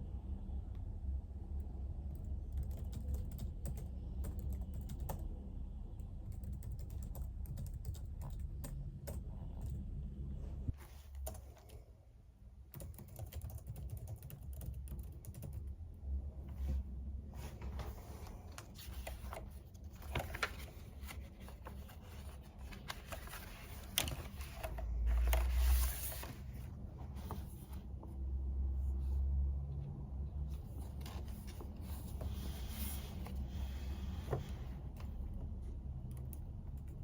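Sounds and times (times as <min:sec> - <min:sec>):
keyboard typing: 0:02.1 - 0:05.3, 0:06.3 - 0:09.8, 0:12.7 - 0:15.8.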